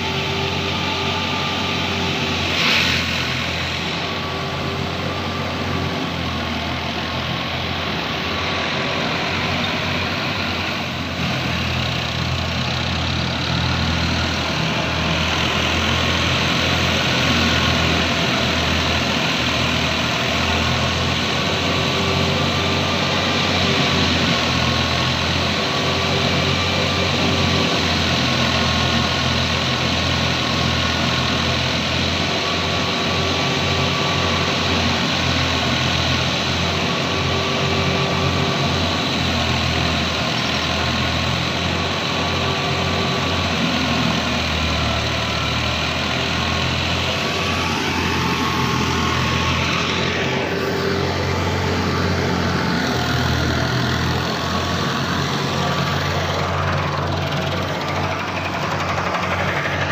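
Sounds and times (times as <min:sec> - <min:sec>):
heavy engine humming: 0:00.0 - 0:59.9.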